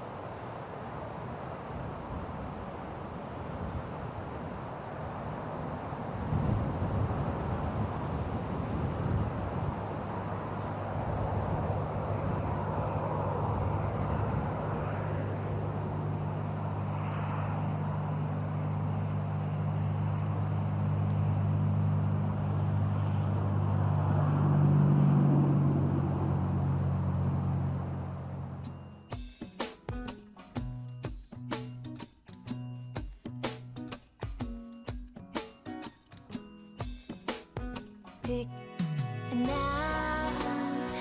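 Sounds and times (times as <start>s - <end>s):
helicopter engine and rotor: 11.8s - 23.4s.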